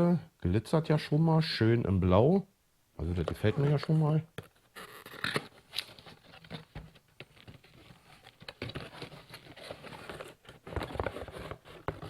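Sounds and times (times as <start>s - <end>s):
hands rummaging in cardboard box: 5.8s - 12.0s.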